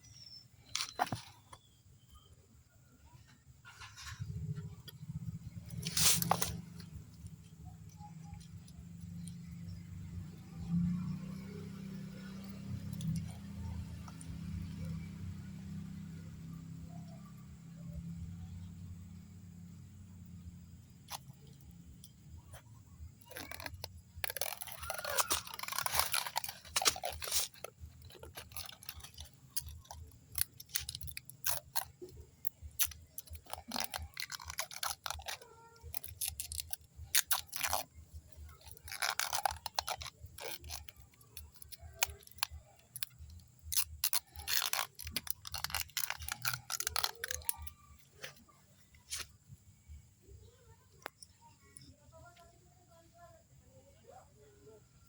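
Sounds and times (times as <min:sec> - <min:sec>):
hands handling plant rustling: 0:03.6 - 0:15.4, 0:21.0 - 0:49.6
small clicks: 0:19.8 - 0:49.5.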